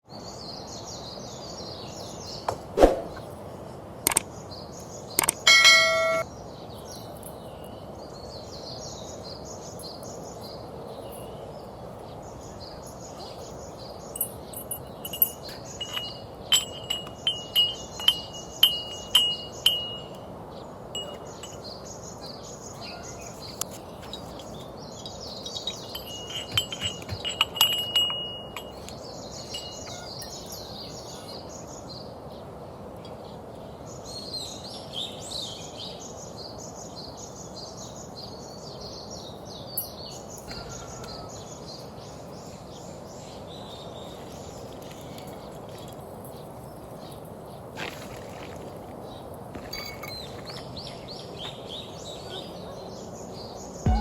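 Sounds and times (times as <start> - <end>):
birds chirping: 4.1 - 35.5, 36.4 - 54.0
metallic clinks and chimes: 5.5 - 6.2, 6.8 - 7.9, 9.8 - 11.8, 12.8 - 20.3, 21.0 - 21.8, 23.3 - 31.4, 39.8 - 41.1, 49.6 - 50.8.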